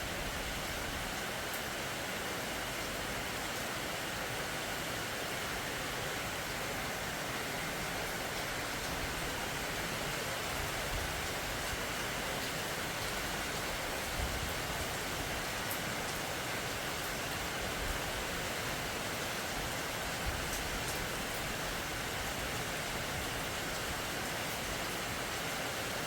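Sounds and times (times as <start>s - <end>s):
steady rain hiss: 0.0s - 26.0s
faint raindrop ticks: 15.6s - 16.2s, 20.3s - 21.5s.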